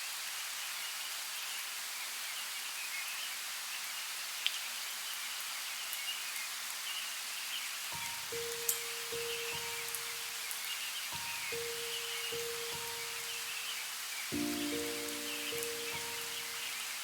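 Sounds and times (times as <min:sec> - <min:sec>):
light rain falling: 0:00.0 - 0:17.0
faint bird chirps: 0:08.0 - 0:17.0.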